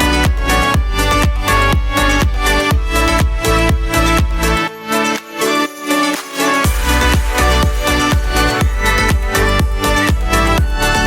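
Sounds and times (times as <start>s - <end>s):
electronic music beat: 0.4s - 11.0s
sustained synth chords: 4.4s - 11.0s.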